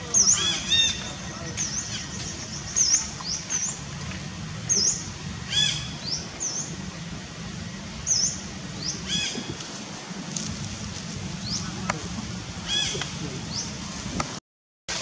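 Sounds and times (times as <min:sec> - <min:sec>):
small birds chirping: 0:00.0 - 0:06.8, 0:07.9 - 0:09.6, 0:11.4 - 0:13.8
steady low hum: 0:00.0 - 0:14.2
lower arched bird call: 0:04.7 - 0:06.8, 0:08.0 - 0:09.5.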